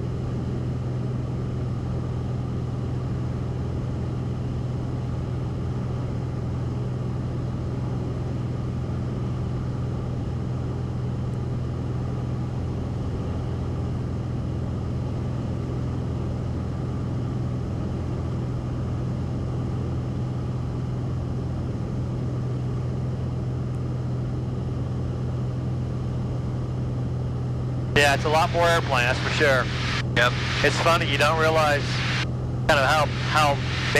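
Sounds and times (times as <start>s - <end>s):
airplane engine droning: 0.0s - 33.9s
airflow noise: 28.0s - 33.9s.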